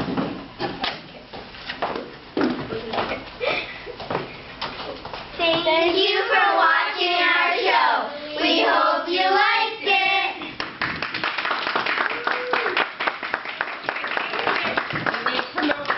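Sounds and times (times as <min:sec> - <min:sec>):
young children singing: 0:05.4 - 0:10.6
hand clapping: 0:10.6 - 0:15.9.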